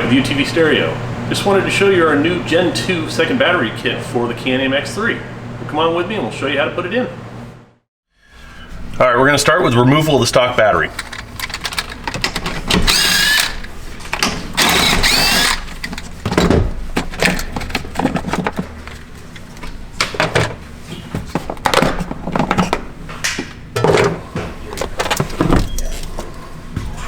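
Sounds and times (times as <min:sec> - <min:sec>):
clicks and knocks of tools: 0:10.9 - 0:16.1
power drill whirring: 0:12.8 - 0:13.7, 0:14.6 - 0:15.7.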